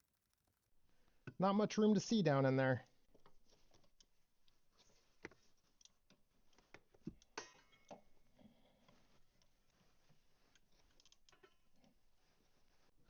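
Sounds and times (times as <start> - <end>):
faint hardware clicks and knocks: 3.1 - 12.0.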